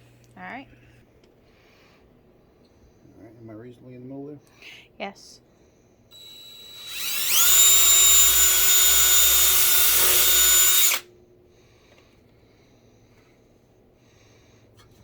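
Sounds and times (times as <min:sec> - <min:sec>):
power drill boring: 0:06.1 - 0:11.0.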